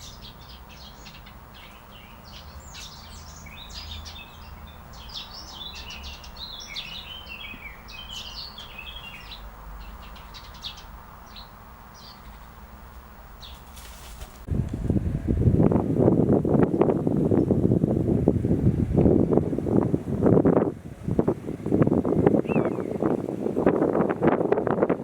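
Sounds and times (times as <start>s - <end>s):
birds chirping: 0.0s - 13.8s, 21.2s - 24.0s
rush of wind noise: 13.8s - 25.0s.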